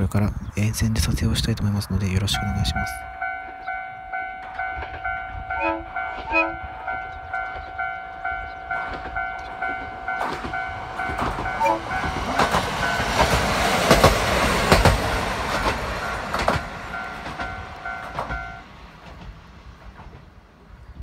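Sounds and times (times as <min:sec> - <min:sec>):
diesel railcar passing: 0:00.0 - 0:21.0
level crossing bell ringing: 0:02.2 - 0:13.2, 0:16.0 - 0:18.6
wheels clicking over rail joints: 0:02.3 - 0:20.7.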